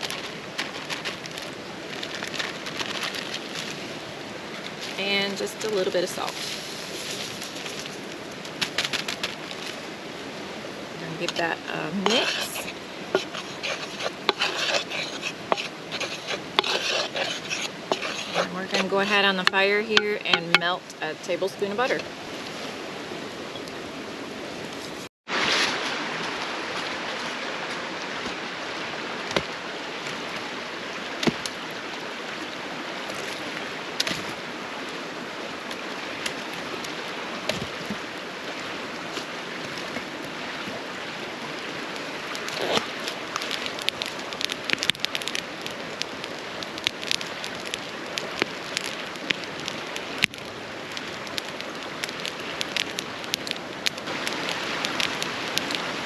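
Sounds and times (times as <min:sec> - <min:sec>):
steady hiss: 0:00.0 - 0:22.2
campfire crackling and popping: 0:00.0 - 0:22.9, 0:25.3 - 0:56.0.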